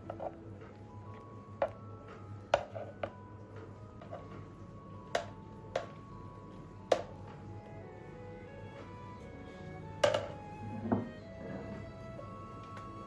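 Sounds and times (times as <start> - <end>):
faint held background tones: 0.0 - 13.0
kitchen utensils knocking: 10.0 - 11.1.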